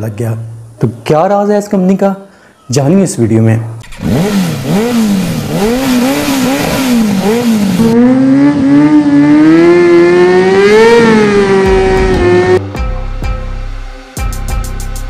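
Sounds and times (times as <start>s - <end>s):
motorcycle engine revving: 3.8s - 12.6s.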